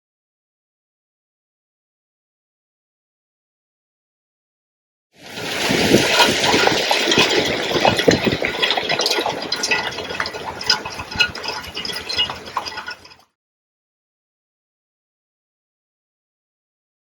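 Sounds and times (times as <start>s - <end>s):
fire hissing and crackling: 5.2s - 13.0s.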